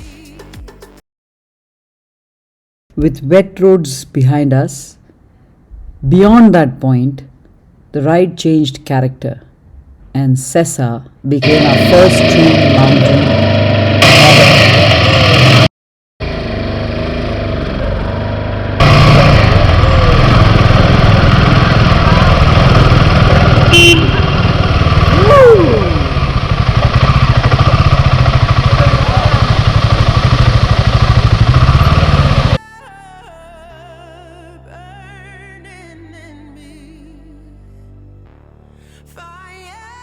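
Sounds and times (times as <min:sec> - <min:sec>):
road and wind noise: 0:05.1 - 0:32.6
motorcycle engine running: 0:11.4 - 0:32.6.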